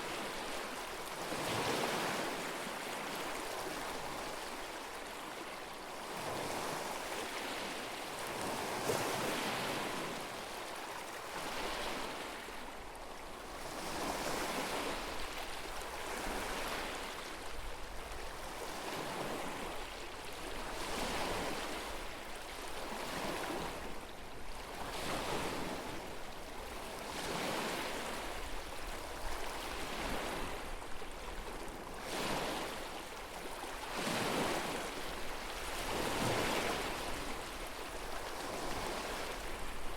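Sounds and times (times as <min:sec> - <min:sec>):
lake waves washing onto shore: 0:00.0 - 0:05.1, 0:22.8 - 0:39.9.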